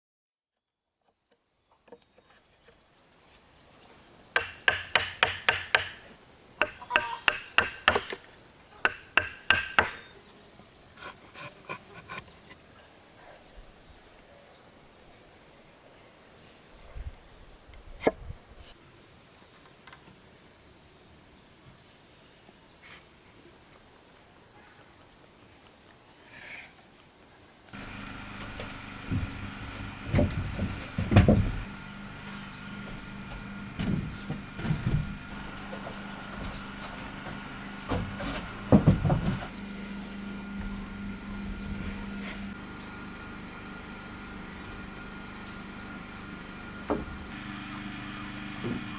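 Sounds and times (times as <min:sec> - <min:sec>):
insects buzzing: 0:00.9 - 0:48.9
hammer striking nails into wood: 0:04.4 - 0:08.2, 0:08.8 - 0:10.1.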